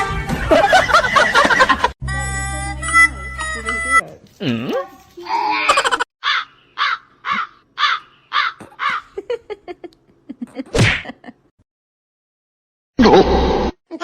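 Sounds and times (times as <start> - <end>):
bird calling: 6.2 - 9.2.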